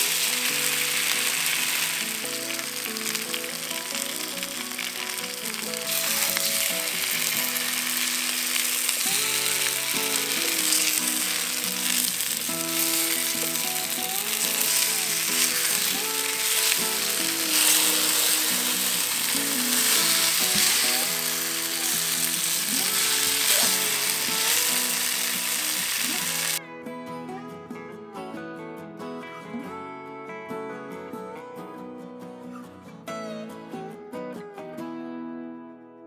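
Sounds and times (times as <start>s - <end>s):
food sizzling in a frying pan: 0.0s - 26.6s
background music: 0.0s - 35.9s.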